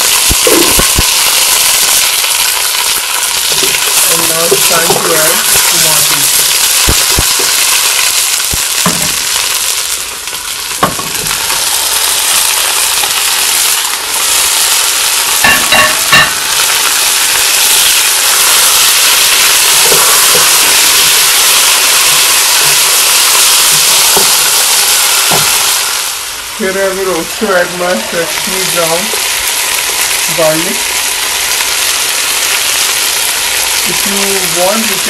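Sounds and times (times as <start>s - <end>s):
oil sizzling in a pot: 0.0s - 35.0s.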